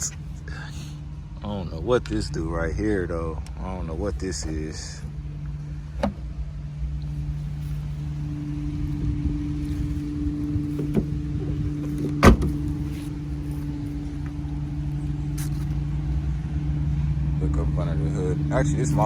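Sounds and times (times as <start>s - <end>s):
car engine idling: 0.0s - 19.0s
loud thump: 11.8s - 13.1s.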